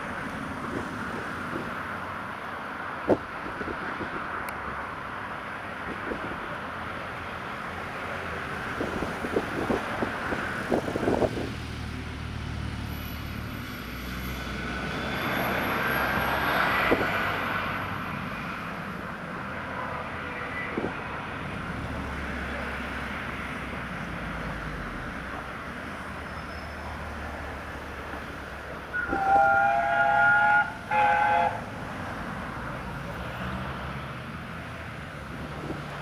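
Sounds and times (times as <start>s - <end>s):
train rumbling past slowly: 7.8s - 22.1s, 26.0s - 36.0s.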